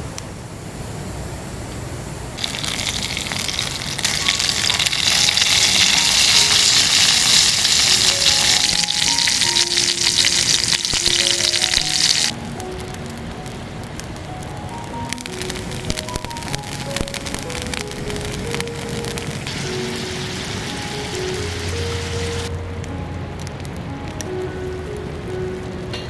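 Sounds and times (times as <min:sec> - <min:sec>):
food sizzling in a pan: 0:02.4 - 0:13.6, 0:14.4 - 0:22.6
soft background music: 0:04.8 - 0:26.0.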